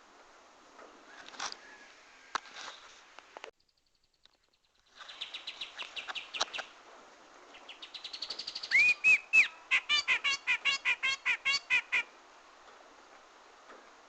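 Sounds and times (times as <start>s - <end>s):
bird chattering: 7.6s - 12.1s
bird whistling: 7.8s - 12.0s.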